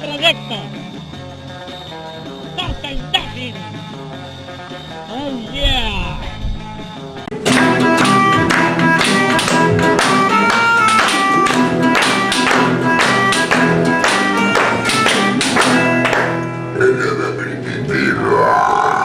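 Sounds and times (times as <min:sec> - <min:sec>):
band playing: 0:07.4 - 0:16.8.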